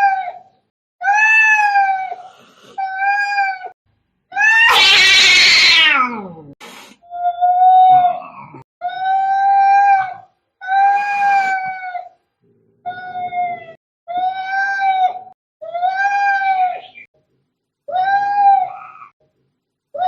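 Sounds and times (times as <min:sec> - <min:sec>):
angry cat yowling: 0:01.0 - 0:03.8, 0:04.4 - 0:06.5, 0:07.1 - 0:12.2, 0:12.8 - 0:16.9.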